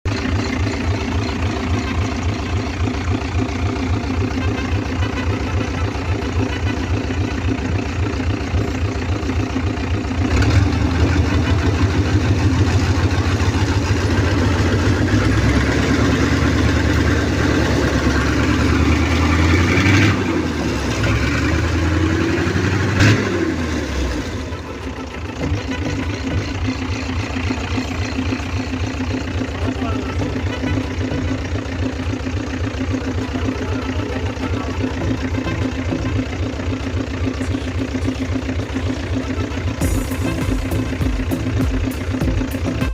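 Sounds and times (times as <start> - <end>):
diesel engine idling and revving: 0.0 - 42.9
short sharp sound: 39.8 - 42.9.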